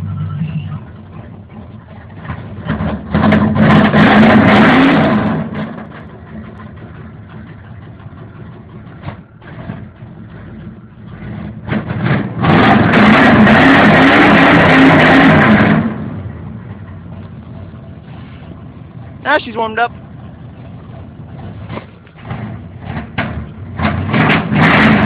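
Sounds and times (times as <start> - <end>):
car engine idling: 0.0 - 25.0
car engine revving hard: 2.2 - 6.0, 9.0 - 16.5, 21.3 - 25.0.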